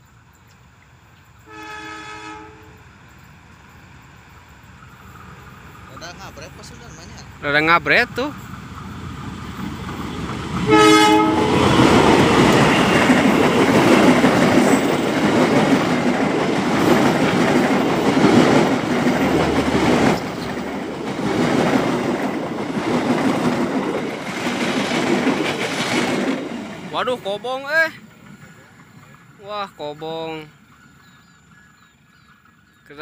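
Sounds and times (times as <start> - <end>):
train wheels rumbling on rails: 0.0 - 33.0
locomotive horn blast: 1.4 - 2.8, 10.6 - 12.1.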